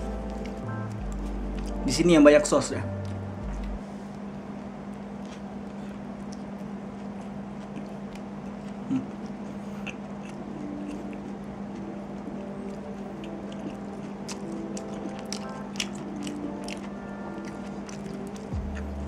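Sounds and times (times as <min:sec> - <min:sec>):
person chewing food: 0:00.0 - 0:01.8, 0:02.9 - 0:19.0
steady low hum: 0:00.0 - 0:19.0.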